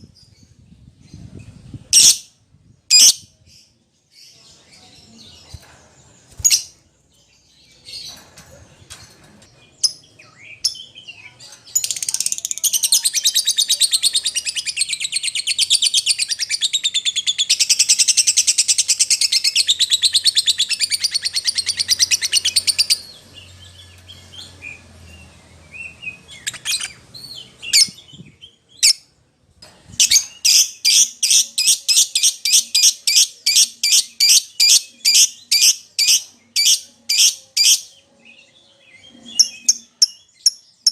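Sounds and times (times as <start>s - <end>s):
lovebird chirping and trilling: 1.9s - 2.2s, 2.9s - 3.3s, 11.7s - 29.1s, 30.0s - 37.9s.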